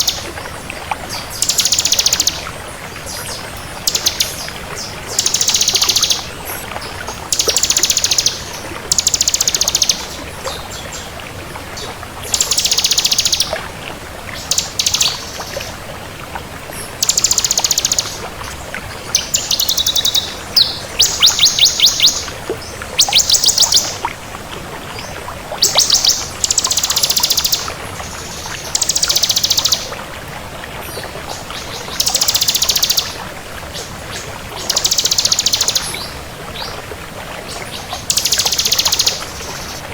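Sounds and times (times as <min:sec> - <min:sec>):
bird singing buzzy trills: 0:03.2 - 0:06.3, 0:12.3 - 0:13.5, 0:14.4 - 0:15.5, 0:17.0 - 0:18.2, 0:19.1 - 0:24.0, 0:25.6 - 0:29.9, 0:31.6 - 0:33.2, 0:34.6 - 0:36.1, 0:37.8 - 0:39.8.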